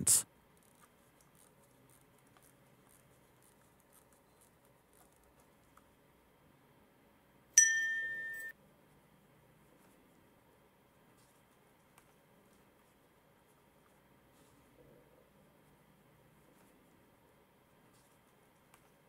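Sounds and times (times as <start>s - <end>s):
bright chime ding: 7.6s - 8.5s.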